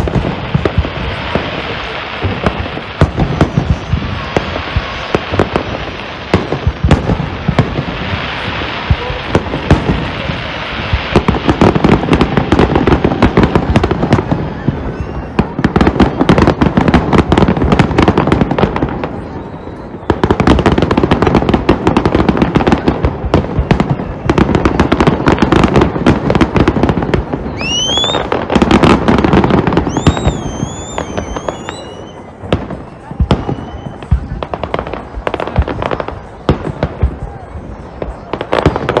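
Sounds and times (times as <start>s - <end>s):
fireworks bangs and crackles: 0.0s - 39.0s
whistling fireworks: 0.0s - 39.0s.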